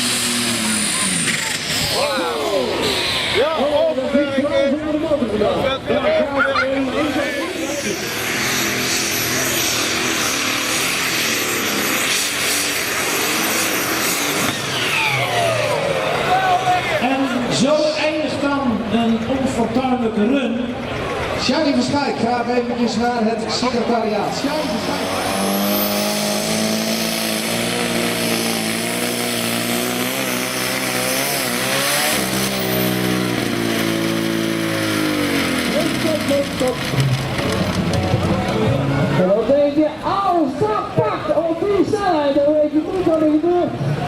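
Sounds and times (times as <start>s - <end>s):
engine running at full power: 0.0s - 41.8s.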